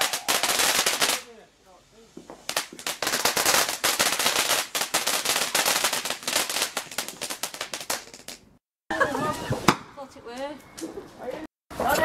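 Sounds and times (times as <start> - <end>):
firework cracks and pops: 0.0 - 1.4, 2.1 - 8.6.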